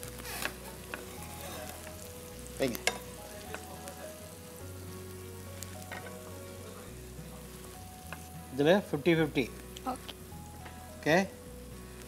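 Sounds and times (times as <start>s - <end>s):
eggs sizzling in oil: 0.0s - 12.0s
metal spoon knocking on pan: 2.7s - 3.7s.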